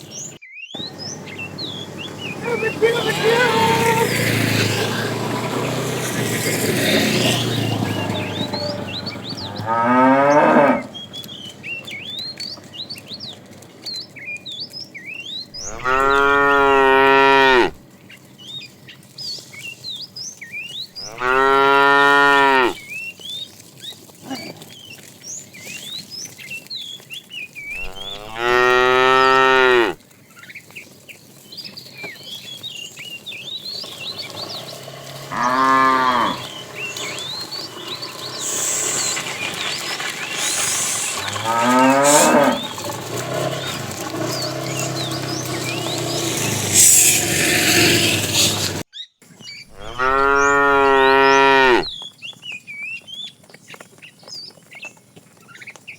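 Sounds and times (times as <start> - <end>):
cattle mooing: 1.2 - 6.2, 6.9 - 11.1, 15.6 - 17.8, 21.0 - 22.8, 27.7 - 30.0, 34.0 - 39.2, 41.1 - 48.8, 49.7 - 51.9.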